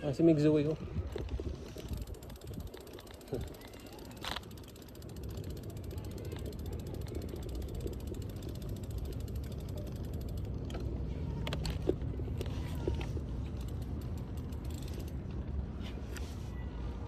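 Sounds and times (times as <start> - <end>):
bicycle freewheel ticking: 1.7 - 10.8, 13.0 - 15.2.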